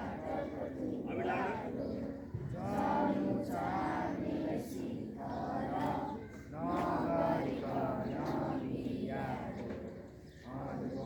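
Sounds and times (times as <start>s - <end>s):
students singing in unison: 0.0s - 9.9s, 10.5s - 11.0s.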